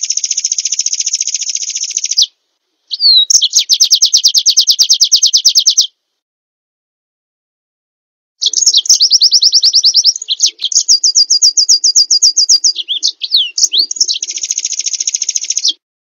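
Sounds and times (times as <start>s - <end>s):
songbird trilling: 0.0s - 2.3s, 2.9s - 5.9s, 8.4s - 15.8s.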